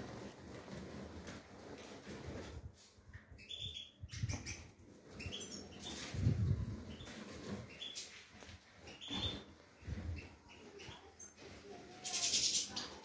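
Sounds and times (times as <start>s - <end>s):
cage birds chirping: 3.1s - 13.0s.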